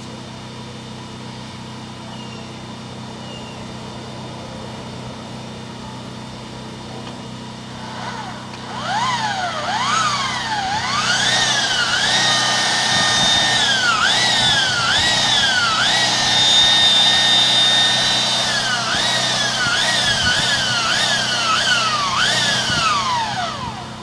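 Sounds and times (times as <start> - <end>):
drain-cleaning motor whining: 7.0 - 24.0.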